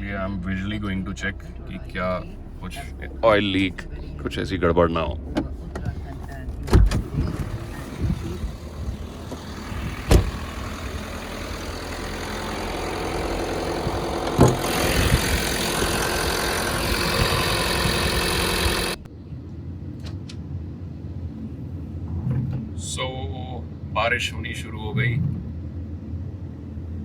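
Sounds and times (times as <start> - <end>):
car engine running: 0.0 - 19.1
low hum: 0.0 - 22.3
sharp knocks: 9.3 - 10.6.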